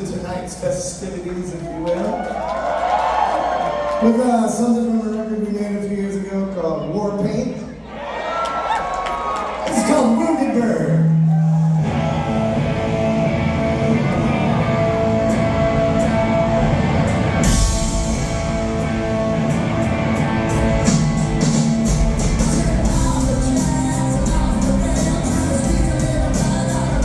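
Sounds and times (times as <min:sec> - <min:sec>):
drums: 0:08.7 - 0:27.0
bass guitar: 0:11.2 - 0:27.0
electric guitar: 0:11.8 - 0:27.0.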